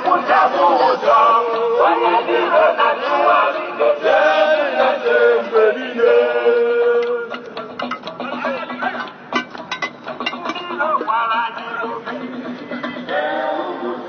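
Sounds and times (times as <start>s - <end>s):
group singing a chant: 0.0s - 8.0s, 11.9s - 14.0s.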